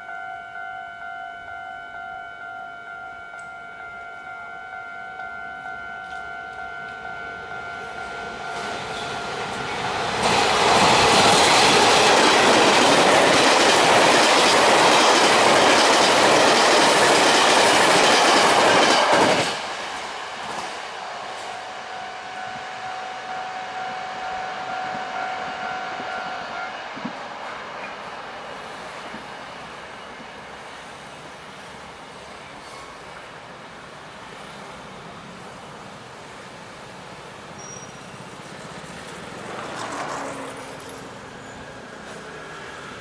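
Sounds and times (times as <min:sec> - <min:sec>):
steady ringing tone: 0:00.0 - 0:09.8
express train passing at speed: 0:00.0 - 0:43.0.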